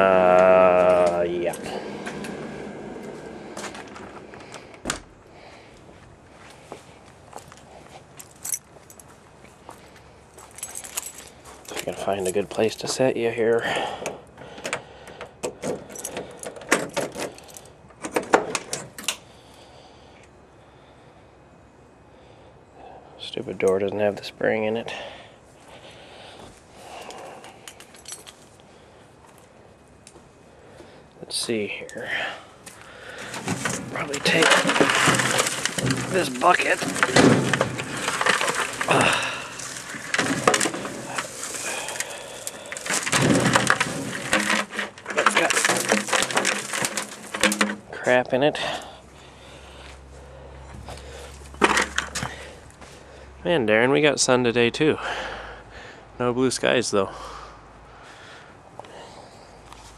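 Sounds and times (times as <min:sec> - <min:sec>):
bucket clattering and scraping: 0:00.0 - 0:04.8, 0:33.0 - 0:48.8, 0:50.9 - 0:52.6.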